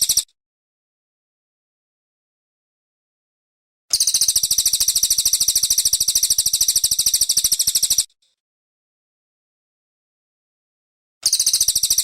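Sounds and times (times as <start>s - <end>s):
songbird high-pitched trill: 0.0s - 0.3s, 3.9s - 8.1s, 11.2s - 12.0s.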